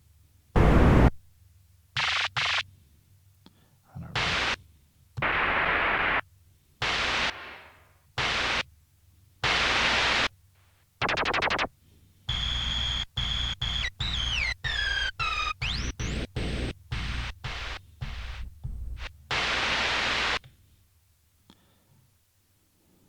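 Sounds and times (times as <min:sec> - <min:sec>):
bursts of white noise hiss: 0:00.6 - 0:01.2, 0:02.0 - 0:02.6, 0:04.2 - 0:04.6, 0:05.2 - 0:06.2, 0:06.8 - 0:08.7, 0:09.4 - 0:10.4, 0:11.0 - 0:11.7, 0:12.3 - 0:20.4.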